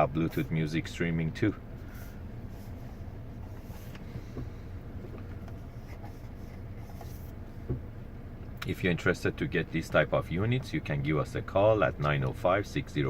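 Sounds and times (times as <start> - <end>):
car engine idling: 0.0 - 13.0
faint engine ticks: 3.8 - 5.7, 7.6 - 13.0.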